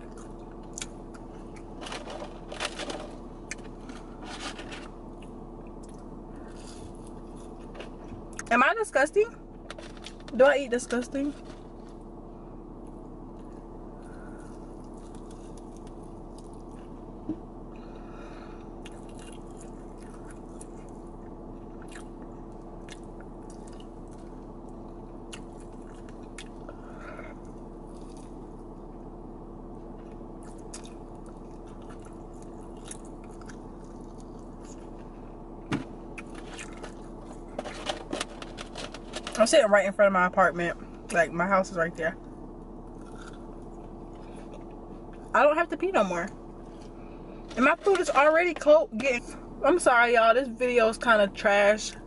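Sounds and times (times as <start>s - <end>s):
car cabin hum: 0.0s - 52.0s
person chewing and biting: 5.2s - 8.4s, 18.7s - 26.8s, 27.9s - 28.4s, 29.9s - 35.1s, 36.1s - 37.5s, 42.9s - 45.2s.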